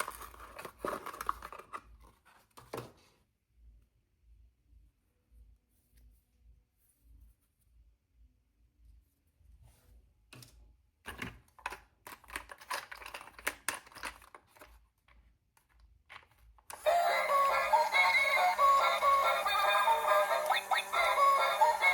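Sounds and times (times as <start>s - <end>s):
plastic packaging crackling: 0.0s - 1.8s
music with synthetic singing: 16.7s - 21.9s.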